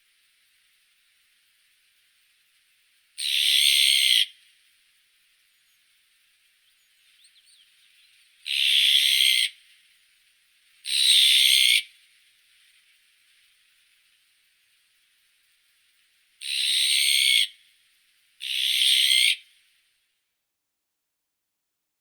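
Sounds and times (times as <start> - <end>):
magpie harsh calls: 3.2 - 4.3, 8.4 - 9.6, 16.4 - 17.5, 18.4 - 19.4
faint short bird chirps: 5.5 - 5.9, 6.5 - 8.7.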